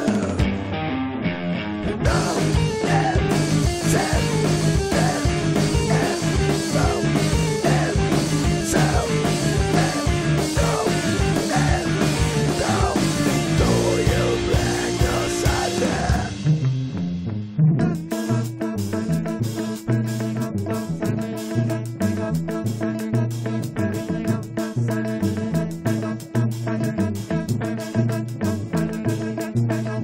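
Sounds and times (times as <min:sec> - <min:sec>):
rock band playing: 0:00.0 - 0:22.1.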